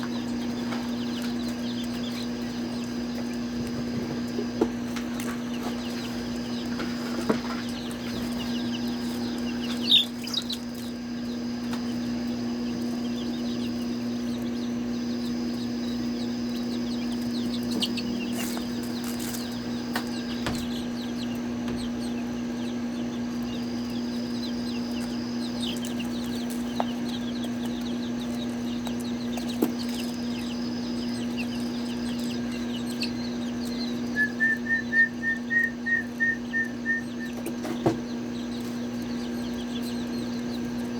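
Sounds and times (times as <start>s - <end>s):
chickens clucking and peeping: 0.0s - 40.9s.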